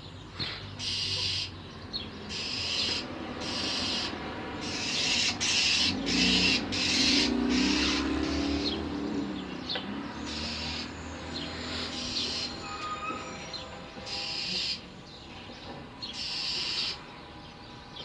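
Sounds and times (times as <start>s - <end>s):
bird chirps: 0.0s - 18.0s
bird scolding calls: 0.8s - 1.6s, 2.2s - 8.8s, 10.2s - 11.0s, 16.1s - 17.0s.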